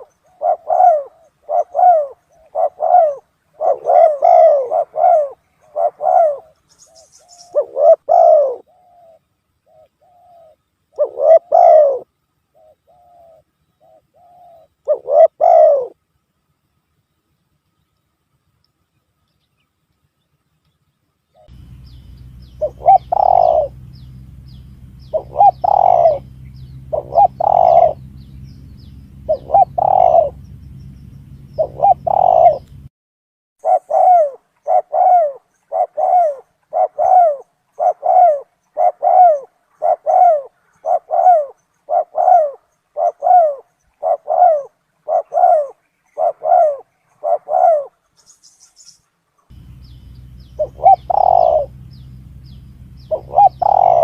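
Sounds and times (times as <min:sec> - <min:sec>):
dove cooing: 0:00.0 - 0:16.0, 0:21.4 - 0:32.9, 0:33.6 - 0:48.0, 0:49.5 - 0:54.0
low hum: 0:21.5 - 0:32.9, 0:49.5 - 0:54.0.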